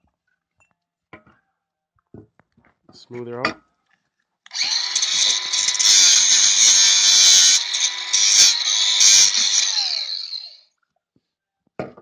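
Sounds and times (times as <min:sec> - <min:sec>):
power grinder grinding metal: 0:04.5 - 0:10.6.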